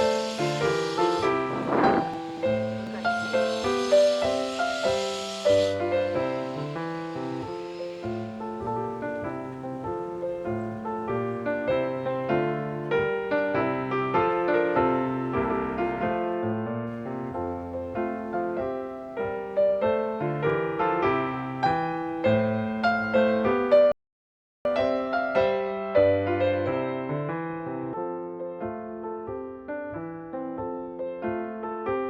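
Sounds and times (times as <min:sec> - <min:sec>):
gentle piano music: 0:00.0 - 0:24.0, 0:24.7 - 0:32.0.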